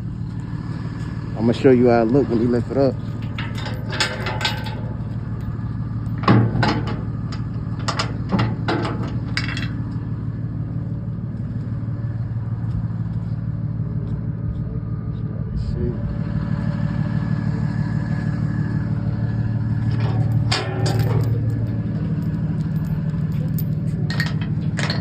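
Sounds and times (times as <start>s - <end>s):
truck engine running: 0.0s - 25.0s.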